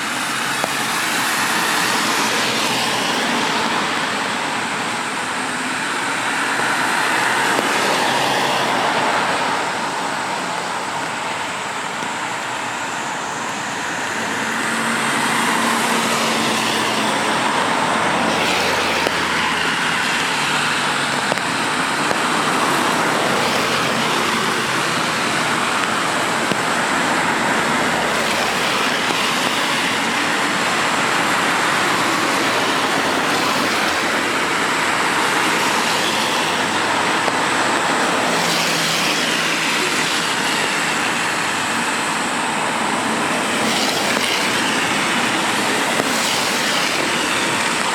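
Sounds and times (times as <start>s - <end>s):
passing vehicle engines humming: 0.0s - 47.9s
rain hissing: 0.0s - 47.9s
tyres on wet tarmac: 0.0s - 47.9s.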